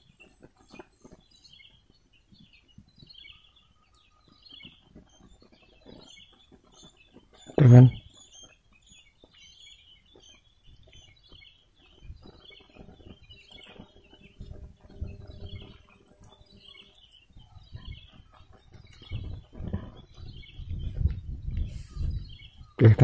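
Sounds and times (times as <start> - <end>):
small birds chirping: 0.0 - 23.0
high-pitched whine: 12.0 - 17.2.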